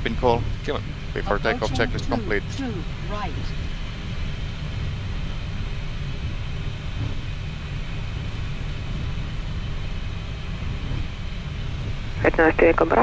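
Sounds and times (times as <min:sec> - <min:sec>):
faint high hum: 0:00.0 - 0:04.0, 0:12.1 - 0:13.0
jet engines idling: 0:00.0 - 0:13.0
steady low rumble: 0:00.0 - 0:13.0.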